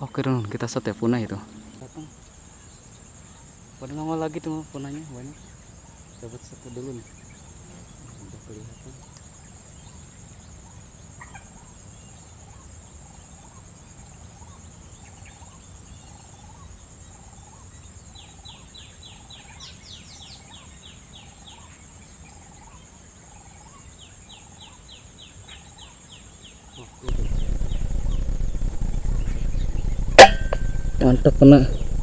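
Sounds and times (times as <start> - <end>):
high insect drone: 0.0 - 32.0
bird hooked note: 27.1 - 32.0.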